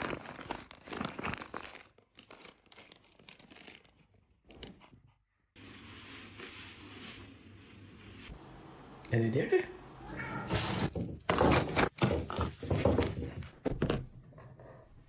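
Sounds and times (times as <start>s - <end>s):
rustling crinkling noises: 0.0s - 8.4s.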